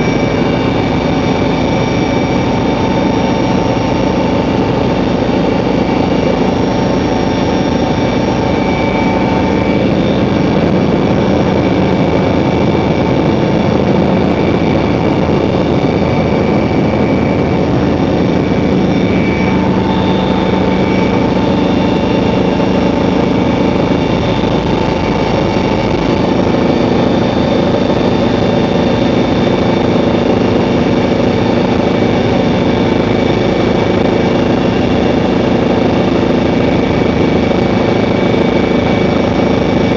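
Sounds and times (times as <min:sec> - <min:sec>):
helicopter rotor drone: 0:00.0 - 0:39.9
helicopter turbine whine: 0:00.0 - 0:39.9.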